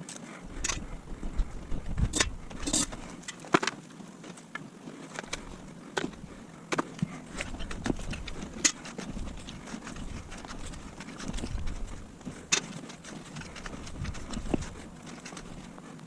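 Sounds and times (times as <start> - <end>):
low machinery rumble: 0.4 - 3.2.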